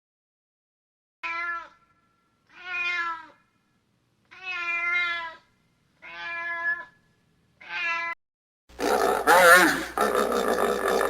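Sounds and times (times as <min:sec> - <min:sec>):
animal calling: 0:08.8 - 0:11.0.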